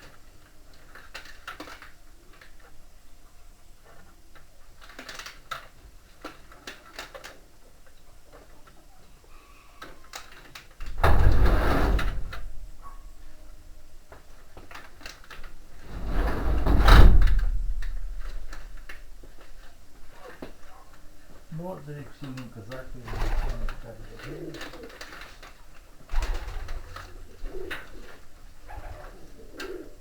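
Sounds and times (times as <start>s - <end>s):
loud rumbling scrapes: 11.0s - 12.8s, 15.6s - 19.2s.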